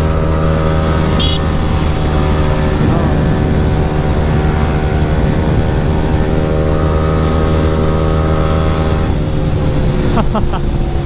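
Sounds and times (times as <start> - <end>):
motorcycle engine at high revs: 0.0 - 11.0
wind rushing: 0.8 - 7.2.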